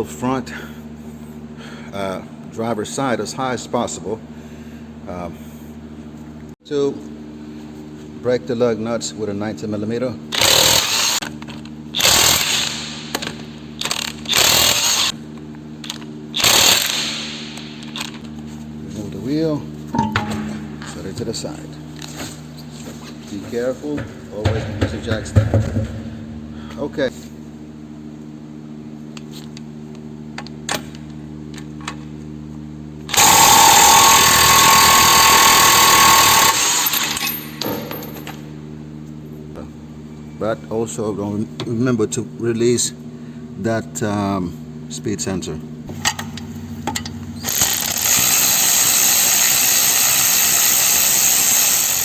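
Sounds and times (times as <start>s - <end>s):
impact wrench hammering: 10.4s - 11.3s, 12.0s - 15.2s, 16.4s - 18.2s, 20.0s - 21.0s, 24.0s - 26.6s, 33.1s - 38.2s
low hum: 17.2s - 27.1s.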